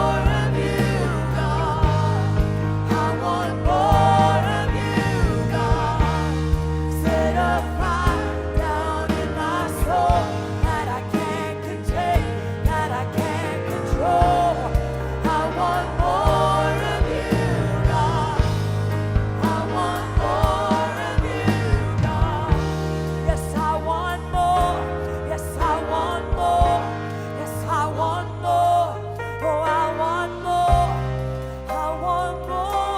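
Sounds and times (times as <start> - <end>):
live band playing slow song: 0.0 - 32.9
person singing wordless melody: 19.4 - 32.9.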